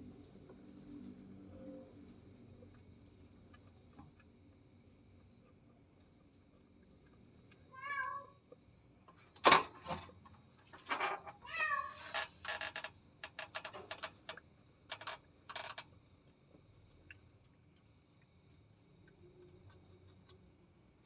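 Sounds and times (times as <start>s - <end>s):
cat meowing: 7.7s - 8.4s, 11.4s - 12.1s.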